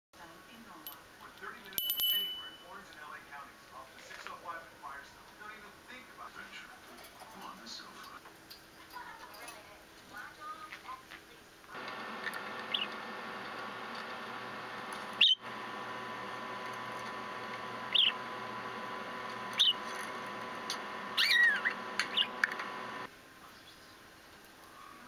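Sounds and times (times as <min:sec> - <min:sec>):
faint hum: 0:11.6 - 0:23.1
budgerigar chirping: 0:12.7 - 0:13.0, 0:15.2 - 0:15.4, 0:17.9 - 0:18.2, 0:19.6 - 0:19.8, 0:21.2 - 0:22.3.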